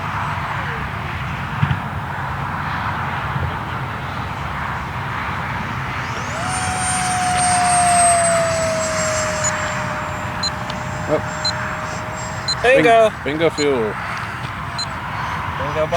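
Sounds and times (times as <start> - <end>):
model airplane motor whine: 5.6 - 15.9
steady rush of noise: 6.0 - 15.0.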